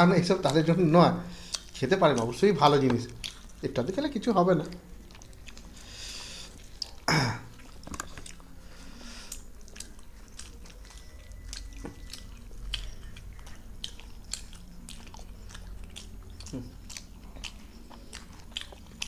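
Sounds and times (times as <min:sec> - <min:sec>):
people chewing: 0:00.3 - 0:19.0.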